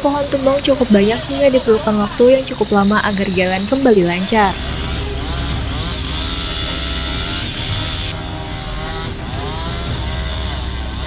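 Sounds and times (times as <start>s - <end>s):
chainsaw revving: 0.0s - 11.0s
low engine rumble: 0.0s - 11.0s.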